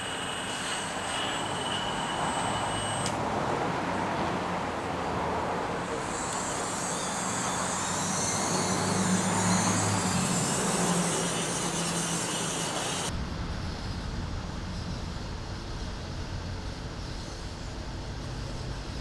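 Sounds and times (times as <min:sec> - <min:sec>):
small electric motors whining: 0:00.0 - 0:13.1.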